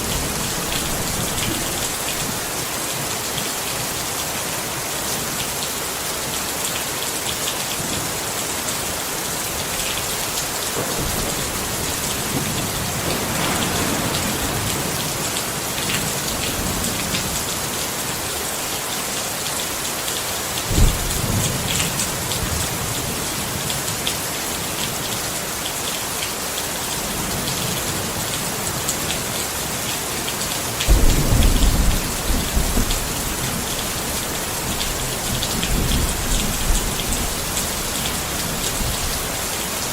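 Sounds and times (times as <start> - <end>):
thunder rumbling: 0.0 - 2.6, 10.8 - 17.6, 20.7 - 21.7, 30.9 - 39.4
rain pattering on a tent: 0.0 - 39.9.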